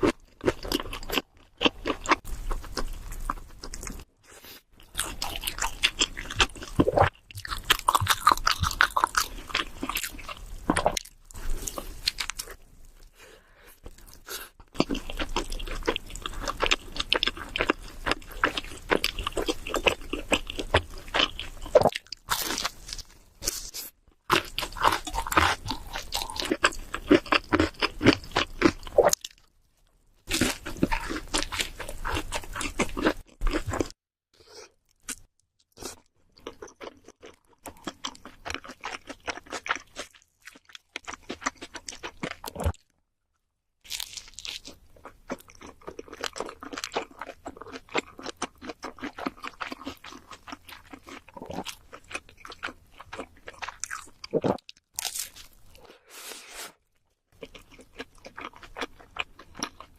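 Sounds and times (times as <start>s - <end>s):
chewing and crunching pizza: 0.0s - 43.0s, 43.9s - 55.9s, 56.9s - 59.9s.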